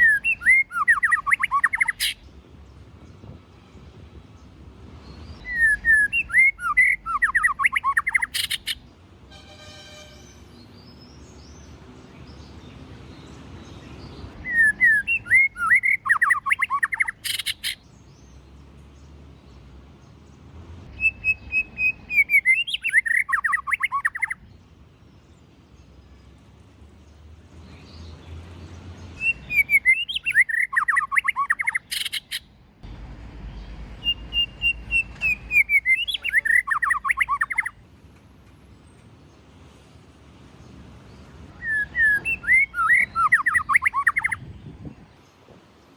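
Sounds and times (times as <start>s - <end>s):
bird singing whistled phrases: 0.0s - 2.2s, 5.4s - 8.8s, 14.4s - 17.8s, 20.9s - 24.4s, 29.2s - 32.4s, 34.0s - 37.8s, 41.6s - 44.4s
sharp bird click: 8.0s - 8.8s.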